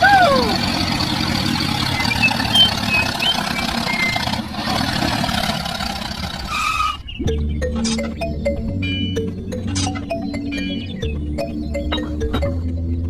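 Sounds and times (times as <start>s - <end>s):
small engine running: 0.0s - 7.0s.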